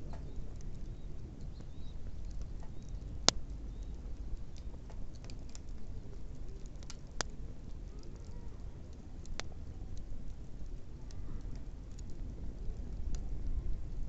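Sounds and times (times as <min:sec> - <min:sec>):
steady low rumble: 0:00.0 - 0:14.0
wood bonfire crackling: 0:00.0 - 0:14.0
sharp fire pops: 0:01.6 - 0:05.8.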